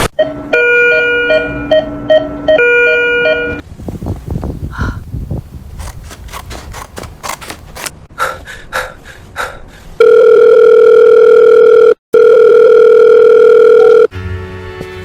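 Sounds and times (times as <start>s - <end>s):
quick clicks: 5.5s - 7.9s.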